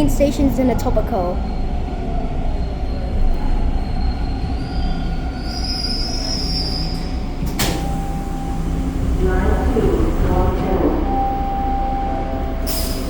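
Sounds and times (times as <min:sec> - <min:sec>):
subway train rumble: 0:00.0 - 0:13.0
wheel squeal: 0:02.6 - 0:07.2.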